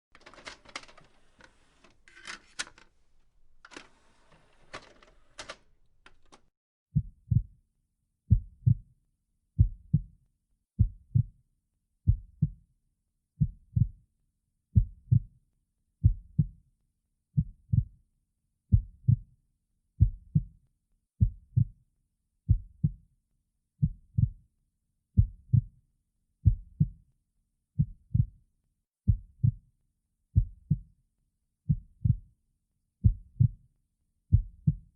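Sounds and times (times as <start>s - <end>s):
rustling: 0.2s - 6.4s.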